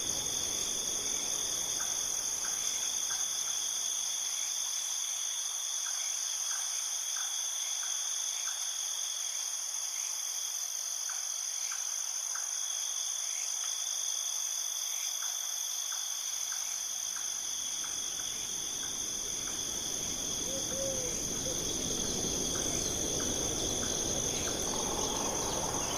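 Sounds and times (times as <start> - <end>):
insects trilling: 0.0 - 25.9
low rushing noise: 18.1 - 25.9.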